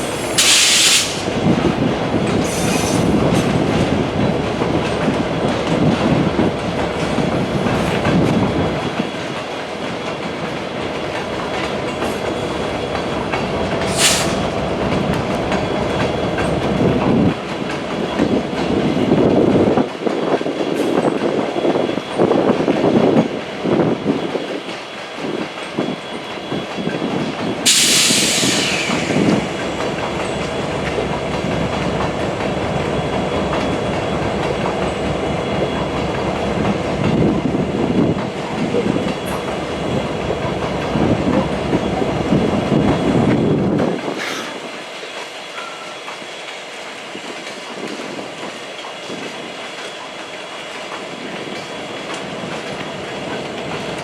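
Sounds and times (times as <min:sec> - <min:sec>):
train wheel squeal: 0:02.3 - 0:03.7, 0:15.5 - 0:19.2, 0:20.0 - 0:30.7, 0:32.4 - 0:38.1, 0:40.8 - 0:54.0.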